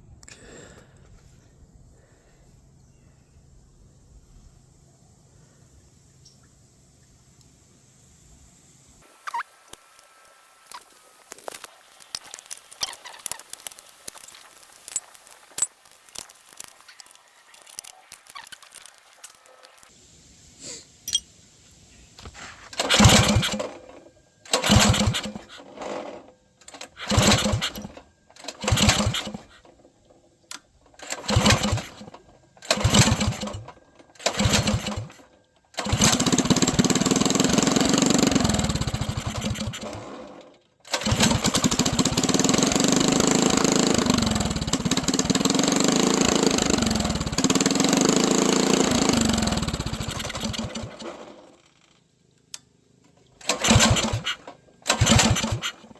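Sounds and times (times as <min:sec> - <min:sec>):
small engine cranking: 0:11.4 - 0:19.9, 0:22.7 - 0:55.9
small engine revving: 0:22.7 - 0:29.8, 0:31.0 - 0:52.0, 0:53.4 - 0:55.9.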